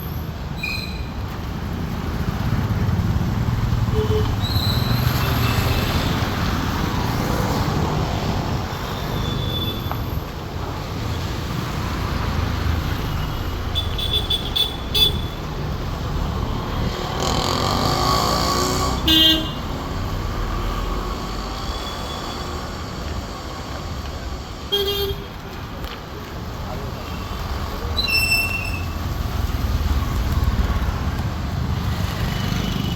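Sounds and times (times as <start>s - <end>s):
road traffic rumble: 0.0s - 32.9s
vehicle horn honks: 19.0s - 19.7s.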